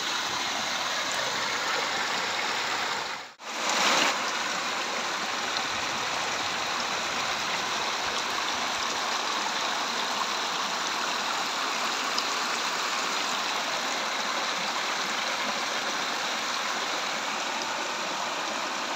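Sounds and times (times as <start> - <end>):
water rushing: 0.0 - 18.9.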